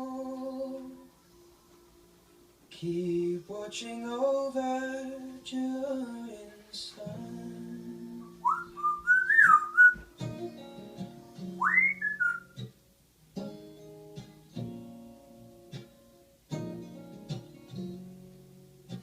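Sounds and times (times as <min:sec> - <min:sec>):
acoustic guitar strumming: 0:00.0 - 0:19.0
parrot whistling: 0:08.4 - 0:10.1, 0:11.6 - 0:12.6.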